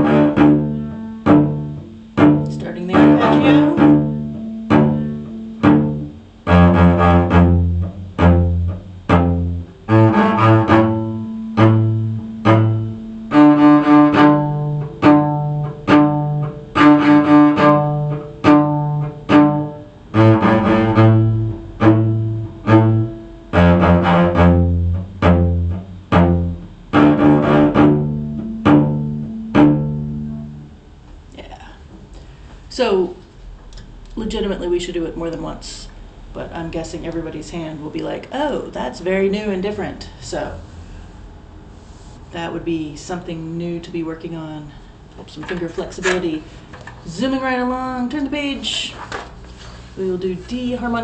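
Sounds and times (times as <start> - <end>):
cello playing arpeggio: 0.0 - 31.0.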